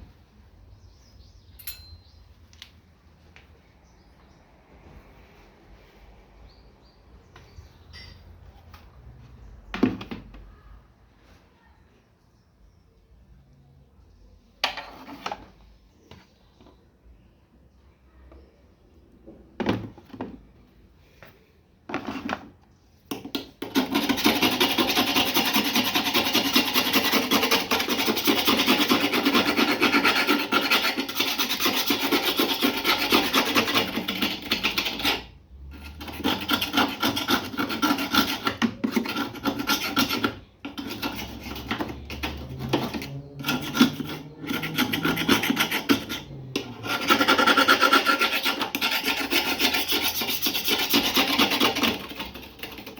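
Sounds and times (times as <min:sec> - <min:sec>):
abrasive scrubbing on metal: 0:23.6 - 0:52.9.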